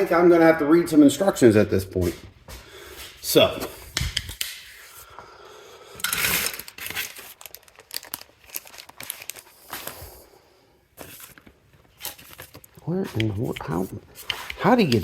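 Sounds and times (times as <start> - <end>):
packaging rustling and crinkling: 6.0 - 10.3, 11.0 - 15.0.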